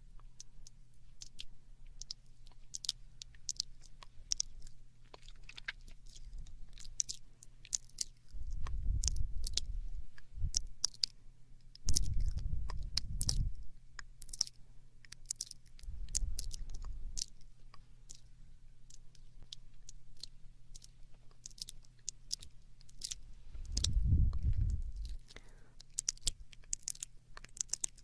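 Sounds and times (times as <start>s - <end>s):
wet mouth clicks and smacks: 0.4s - 18.3s, 18.9s - 28.0s
low rumble: 23.5s - 25.3s.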